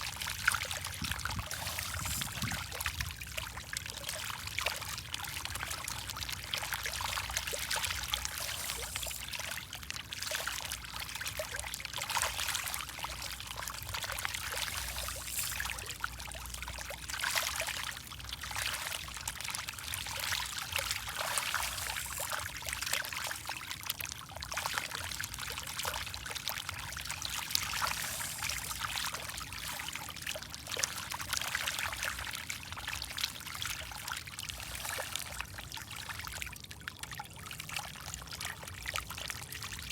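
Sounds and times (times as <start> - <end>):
fish splashing at water surface: 0.5 - 3.7, 6.8 - 10.8, 12.2 - 23.6, 26.1 - 32.3, 32.9 - 36.2.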